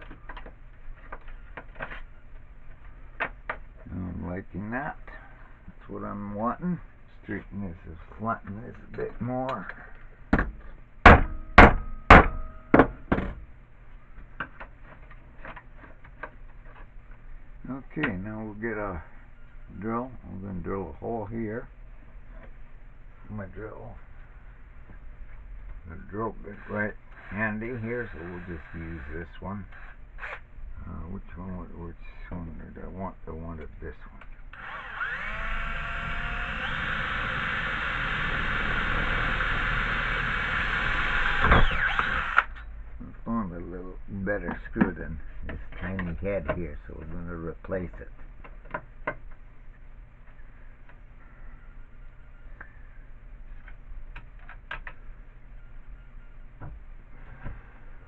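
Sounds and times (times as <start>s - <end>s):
hammer striking metal: 11.1s - 13.0s
electric drill whine: 34.5s - 42.7s.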